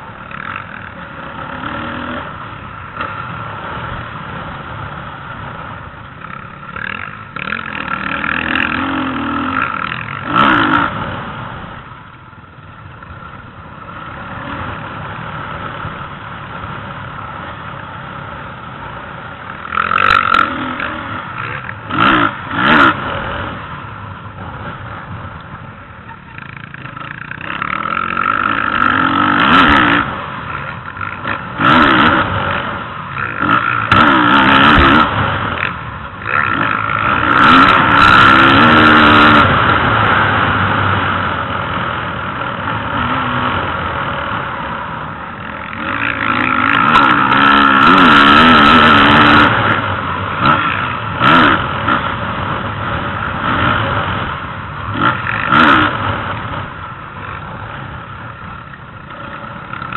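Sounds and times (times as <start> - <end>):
motocross engines revving: 0.0 - 59.9
motorbikes passing close: 0.0 - 59.9.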